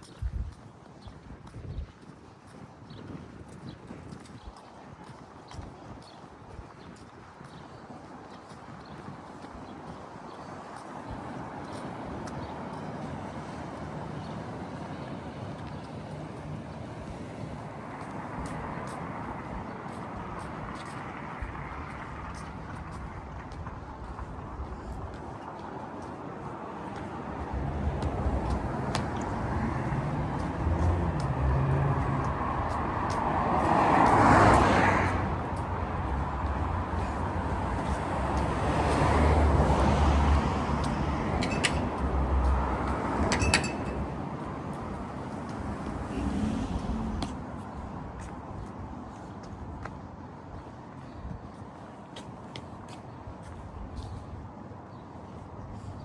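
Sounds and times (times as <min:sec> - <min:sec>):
passing cars: 0:09.4 - 0:54.5
passing vehicle engine rumble: 0:27.1 - 0:49.1.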